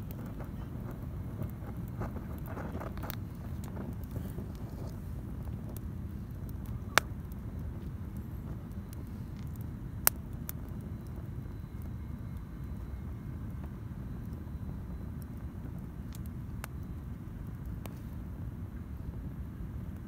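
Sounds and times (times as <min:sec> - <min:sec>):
burning wood crackling pops: 0:00.0 - 0:20.0
campfire rumbling: 0:00.0 - 0:20.0.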